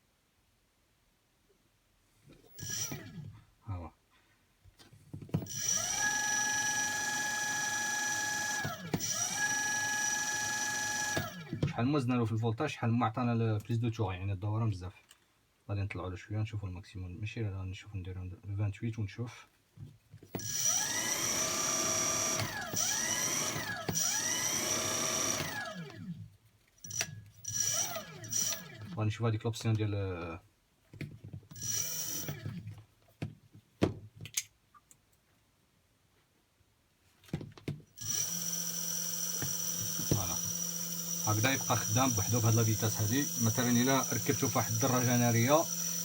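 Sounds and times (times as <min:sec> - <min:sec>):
electric motor whining: 0:02.5 - 0:03.2, 0:05.4 - 0:11.7, 0:20.4 - 0:26.1, 0:26.9 - 0:29.0, 0:31.5 - 0:32.6, 0:38.0 - 0:46.0.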